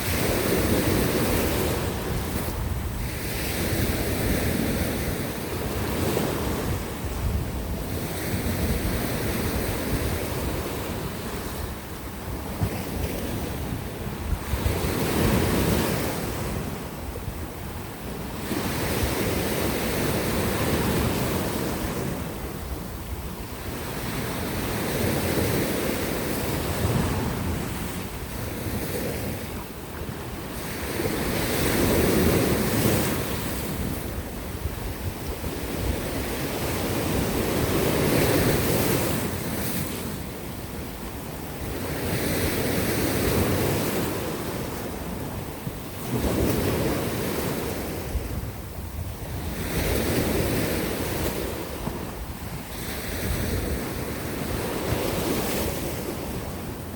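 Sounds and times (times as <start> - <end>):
waves breaking on rocky shore: 0.0 - 56.9
wind buffeting microphone: 0.0 - 56.9.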